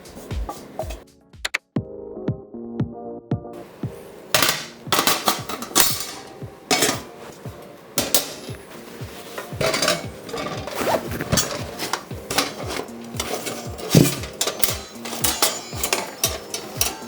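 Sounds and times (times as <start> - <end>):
music with steady beat: 0.0 - 17.0
metal pieces clinking: 9.6 - 17.0.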